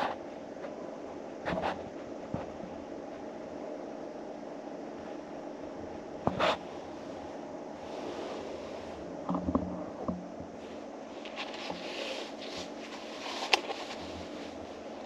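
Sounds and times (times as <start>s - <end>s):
soft rustles and knocks: 9.2s - 14.8s.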